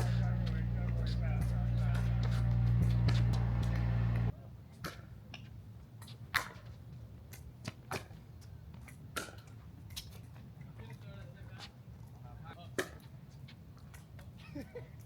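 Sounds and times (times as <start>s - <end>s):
low steady hum: 0.0s - 4.3s.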